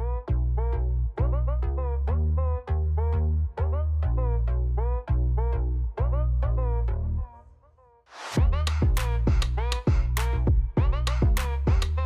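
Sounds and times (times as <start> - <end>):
electronic music with deep bass: 0.0 - 7.3, 8.4 - 12.0.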